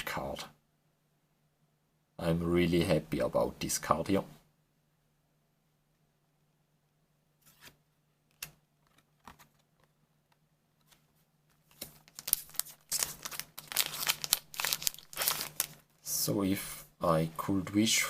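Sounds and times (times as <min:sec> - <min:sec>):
trading cards rustling: 0:10.8 - 0:15.8
wrapper crinkling and tearing: 0:11.6 - 0:16.0.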